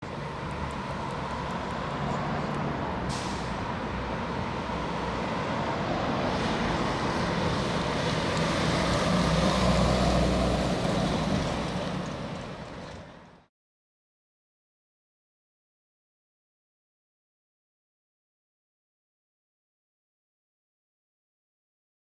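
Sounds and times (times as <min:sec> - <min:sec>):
fire truck engine passing: 0:00.0 - 0:13.5.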